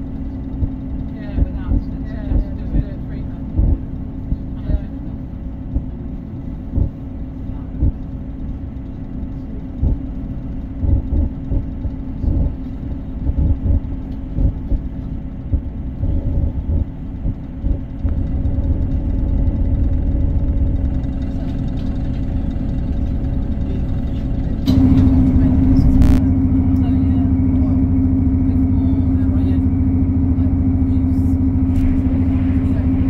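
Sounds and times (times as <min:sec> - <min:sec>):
diesel train engine drone: 0:00.0 - 0:33.0
wheels thumping on track: 0:10.8 - 0:27.2.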